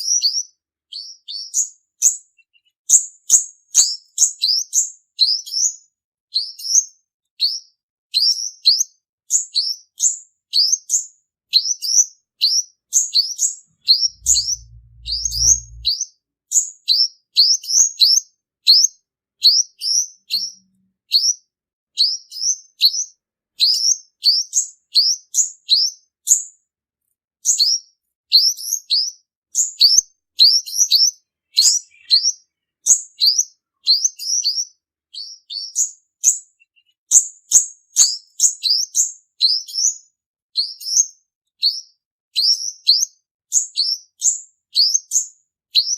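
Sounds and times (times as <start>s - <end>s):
bird high downslurred chirps: 13.8s - 16.0s, 30.4s - 34.6s.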